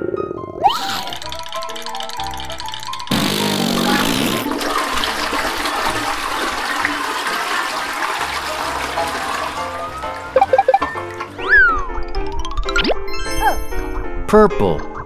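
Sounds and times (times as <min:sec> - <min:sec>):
cartoon fart: 0:00.6 - 0:05.2
toilet flushing: 0:01.2 - 0:11.5.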